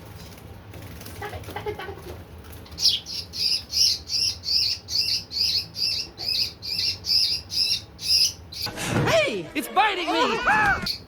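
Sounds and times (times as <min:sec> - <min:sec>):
bird distress chirps: 0:02.8 - 0:08.7.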